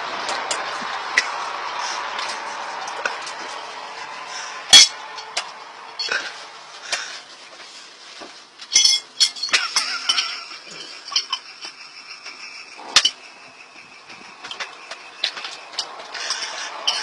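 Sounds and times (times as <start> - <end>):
hard objects clinking and knocking: 8.6 - 17.0.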